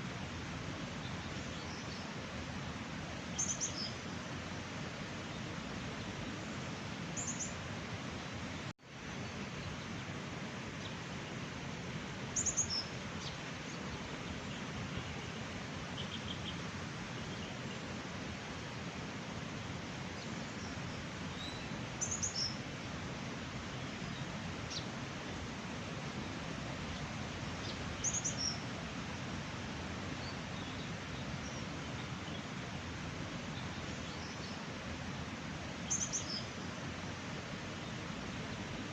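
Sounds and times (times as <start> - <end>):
small birds chirping: 20.2 - 22.6, 26.9 - 28.6, 35.7 - 36.7.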